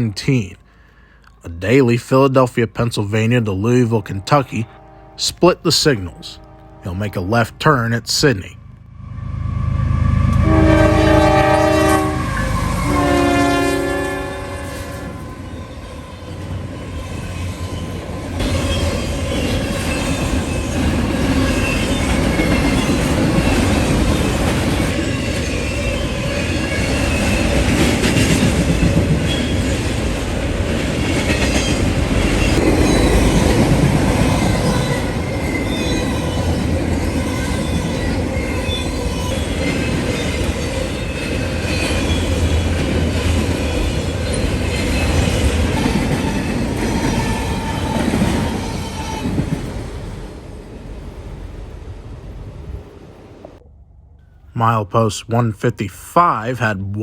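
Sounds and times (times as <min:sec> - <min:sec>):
train wheels clattering on rails: 0:16.3 - 0:50.1.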